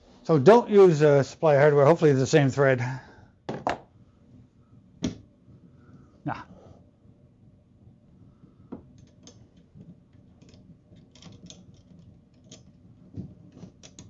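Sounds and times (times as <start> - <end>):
small plastic parts clicking: 9.0 - 12.8, 13.5 - 14.0.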